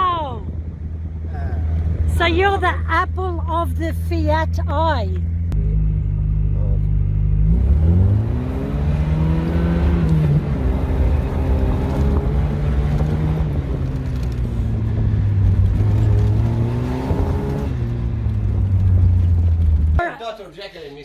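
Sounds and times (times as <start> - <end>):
car engine accelerating: 0.0 - 20.1.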